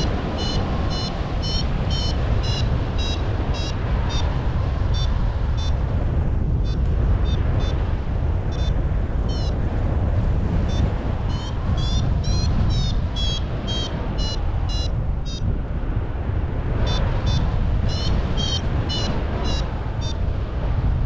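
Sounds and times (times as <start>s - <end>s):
variometer beeping: 0.0s - 4.3s
wind rumble on microphone: 0.0s - 21.0s.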